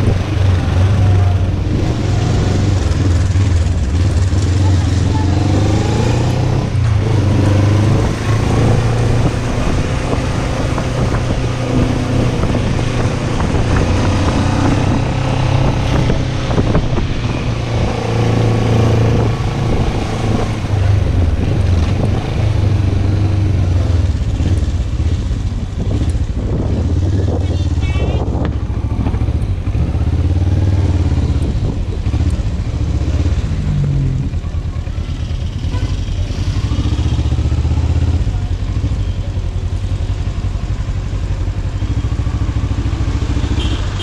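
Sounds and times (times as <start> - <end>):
wind noise on microphone: 0.0 - 4.4, 5.0 - 34.3
motorcycle engine accelerating: 0.0 - 44.0.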